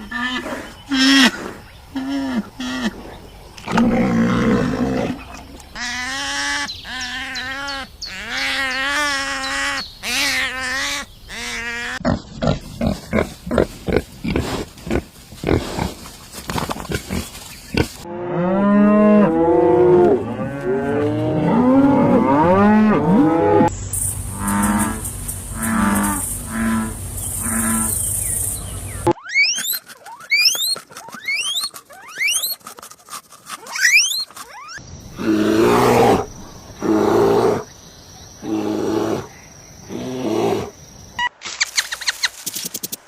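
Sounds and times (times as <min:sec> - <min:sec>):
farm animals calling: 0:03.8 - 0:15.8, 0:24.3 - 0:37.6.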